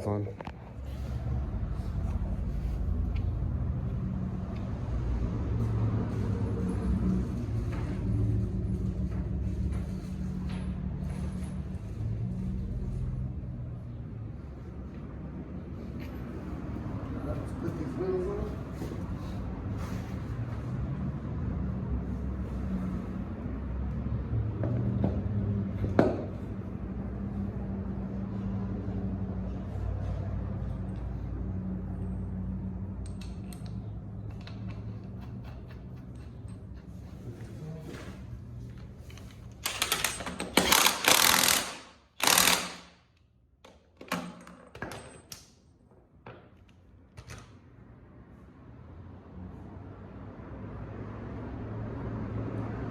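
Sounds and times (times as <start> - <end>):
low workshop hum: 0.0 - 52.9
impact wrench rattling: 39.2 - 43.0.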